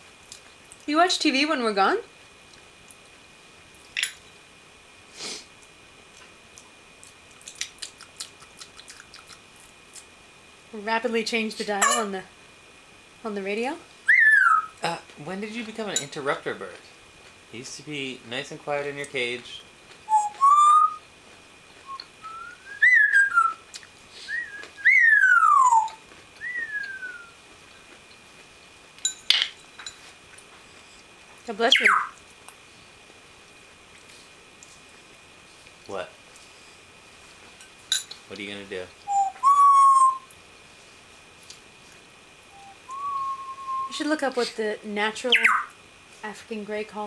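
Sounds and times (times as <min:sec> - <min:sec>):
parrot hissing: 0:05.1 - 0:05.5, 0:24.1 - 0:24.5
parrot beak clicks: 0:07.4 - 0:09.4
faint high whine: 0:08.0 - 0:47.0
parrot whistling: 0:14.0 - 0:14.8, 0:20.1 - 0:21.0, 0:21.8 - 0:23.6, 0:24.3 - 0:27.4, 0:31.7 - 0:32.2, 0:39.0 - 0:40.3, 0:42.5 - 0:43.9, 0:45.3 - 0:45.7.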